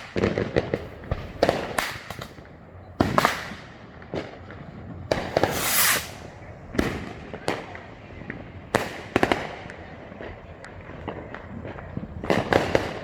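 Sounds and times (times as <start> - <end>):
fireworks bangs and pops: 0.0 - 13.0
fireworks hissing crackle: 5.1 - 7.8.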